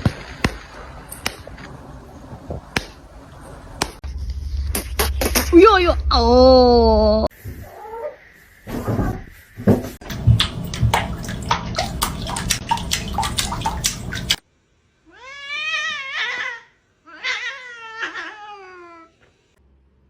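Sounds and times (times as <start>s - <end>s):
cat yowling: 15.1s - 19.2s.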